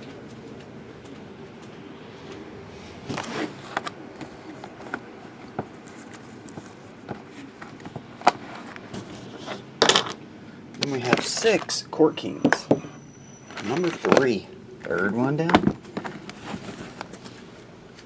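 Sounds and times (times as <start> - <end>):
faint room hum: 0.0 - 18.0
card boxes clicking and rustling: 3.0 - 10.2, 10.8 - 11.8, 13.5 - 17.5.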